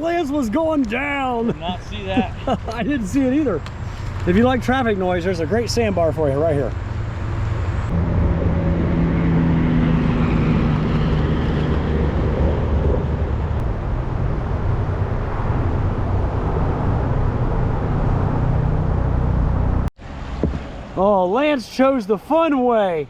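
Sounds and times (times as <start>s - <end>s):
highway traffic: 0.0s - 23.0s
low hum: 6.7s - 20.9s.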